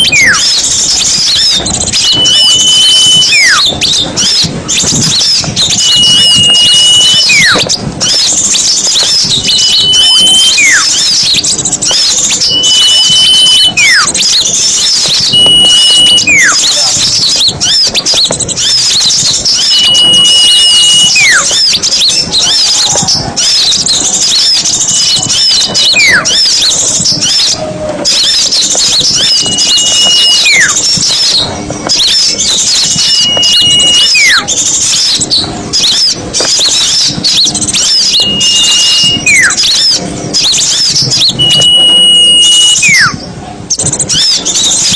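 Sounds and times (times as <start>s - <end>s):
high whistle call: 0.0s - 23.0s, 23.6s - 43.2s
songbirds chattering and twittering: 0.0s - 44.9s.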